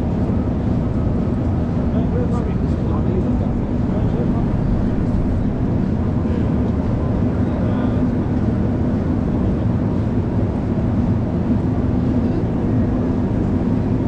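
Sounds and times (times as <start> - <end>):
low even hum: 0.0 - 9.4
traffic rumble: 0.0 - 14.0
faint voices: 1.8 - 9.8.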